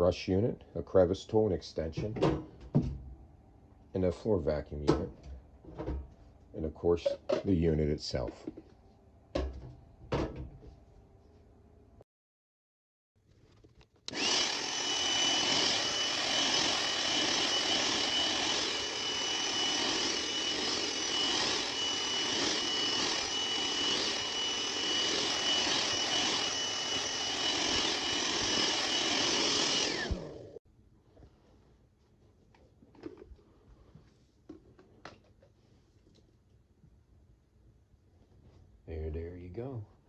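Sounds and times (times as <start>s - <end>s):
hand vacuum running: 14.1s - 30.6s.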